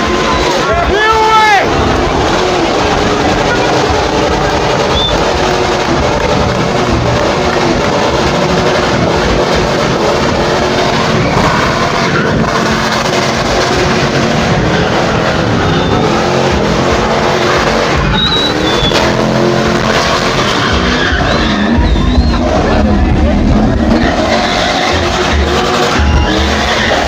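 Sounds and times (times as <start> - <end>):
car engine revving hard: 0.0 - 27.0
tyres screeching: 8.4 - 27.0.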